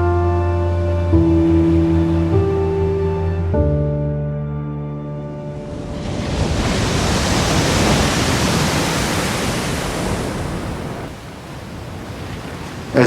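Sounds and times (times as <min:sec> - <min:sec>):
ocean wave breaking: 0:05.3 - 0:13.0.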